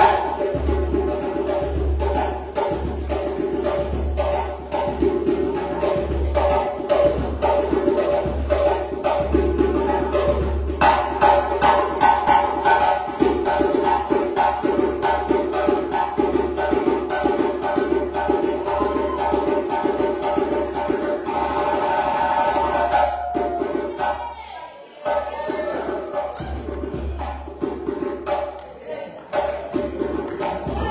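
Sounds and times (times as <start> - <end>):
djembe drum ensemble: 0.0 - 30.9.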